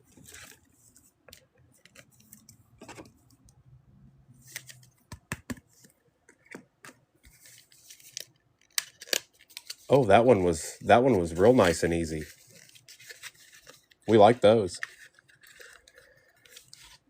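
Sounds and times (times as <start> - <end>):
cards clicking and tapping: 4.5 - 7.4.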